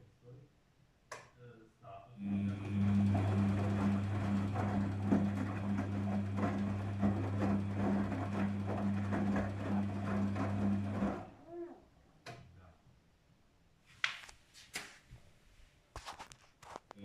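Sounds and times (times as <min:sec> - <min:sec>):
washing machine motor humming: 0:02.2 - 0:11.8
water and laundry sloshing: 0:02.4 - 0:11.4.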